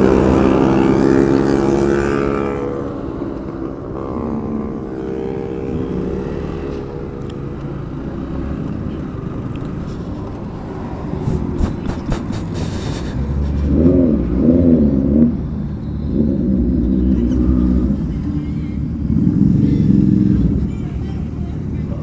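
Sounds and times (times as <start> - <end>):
motorcycle engine: 0.0 - 22.0
wind and road noise: 0.0 - 22.0.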